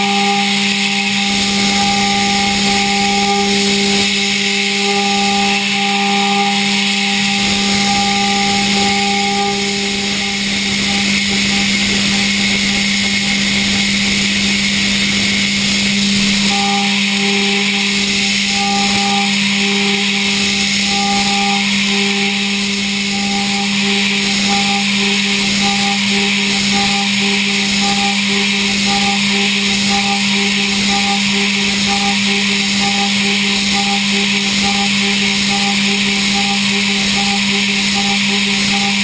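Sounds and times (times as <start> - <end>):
high-speed spindle tone: 0.0 - 39.0
milling cutter whine: 0.0 - 39.0.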